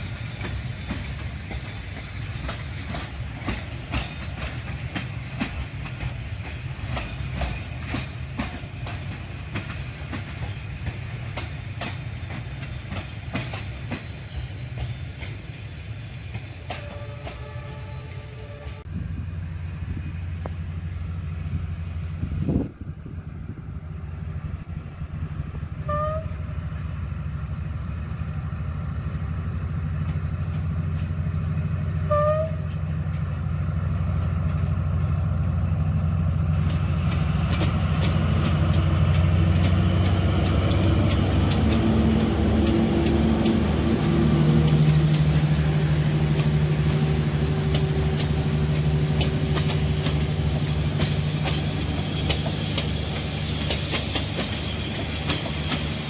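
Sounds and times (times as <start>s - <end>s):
wheels clacking over rail joints: 0.0s - 17.6s, 29.8s - 56.0s
locomotive engine hum: 0.0s - 56.0s.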